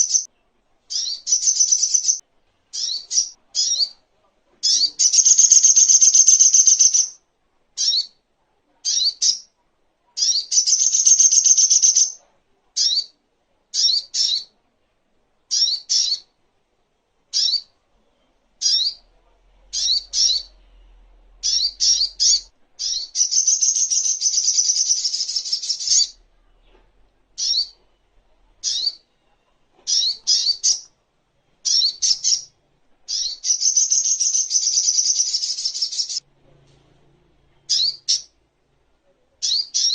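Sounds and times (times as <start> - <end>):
bird chattering trills: 4.6 - 7.2, 10.2 - 12.2, 28.6 - 29.0.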